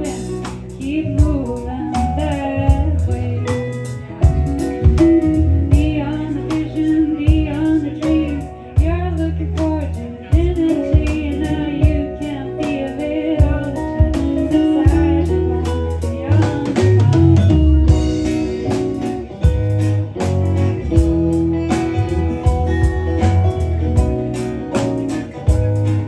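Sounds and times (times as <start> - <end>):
person singing: 0.0 - 20.7
guitar: 0.0 - 26.0
rhythm section: 0.0 - 26.0.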